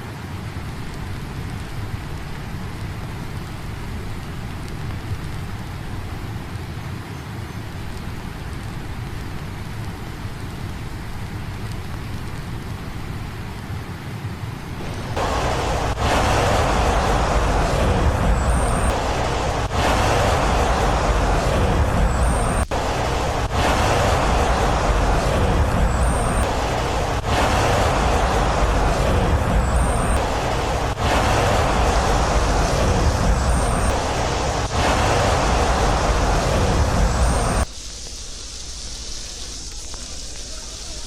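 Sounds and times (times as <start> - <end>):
loud rushing noise: 14.6 - 39.4.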